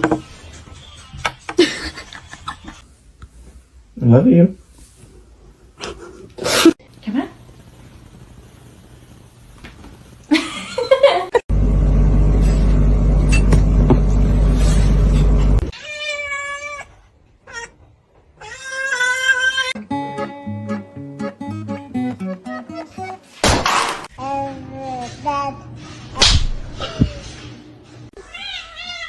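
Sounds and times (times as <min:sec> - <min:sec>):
loud steady low hum: 0:11.5 - 0:15.7.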